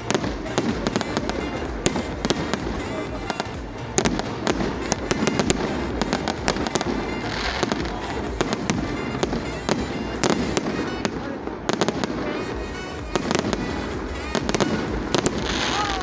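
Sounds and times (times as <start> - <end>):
firework hiss: 0.0 - 16.0
fireworks bangs and cracks: 0.0 - 16.0.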